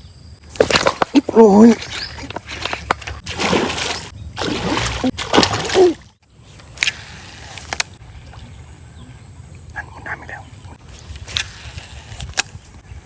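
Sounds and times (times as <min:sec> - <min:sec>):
water splashing and sloshing: 0:00.4 - 0:08.6.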